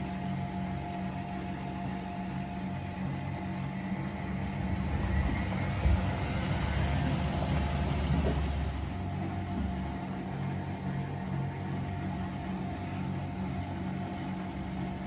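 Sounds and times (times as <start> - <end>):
washing machine drum rumble: 3.8 - 10.0.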